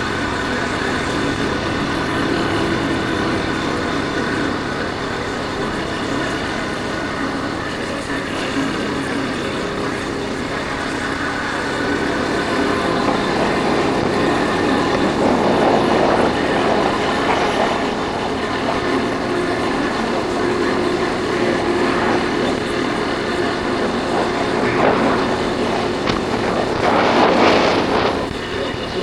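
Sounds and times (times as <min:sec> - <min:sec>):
wind noise on microphone: 0:00.0 - 0:29.0
motorcycle engine running: 0:08.6 - 0:29.0.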